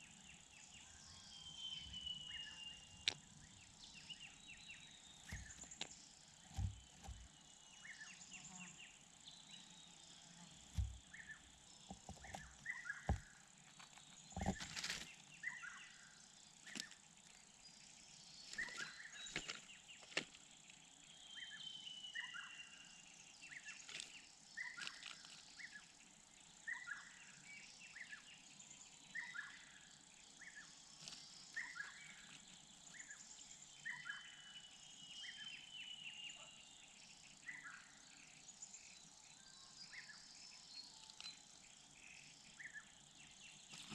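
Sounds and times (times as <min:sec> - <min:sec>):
insects chirring: 0:00.0 - 0:43.9
small birds chirping: 0:00.0 - 0:43.9
sharp knocks: 0:05.3 - 0:05.7, 0:06.5 - 0:07.3, 0:10.7 - 0:11.1, 0:14.4 - 0:14.7.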